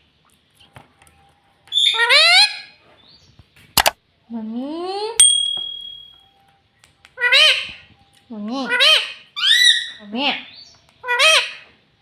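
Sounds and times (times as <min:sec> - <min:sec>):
parrot squawking: 0:01.7 - 0:02.8, 0:07.2 - 0:07.8, 0:08.6 - 0:11.8
sharp click: 0:03.8 - 0:04.0
parrot mimicking speech: 0:08.5 - 0:11.6.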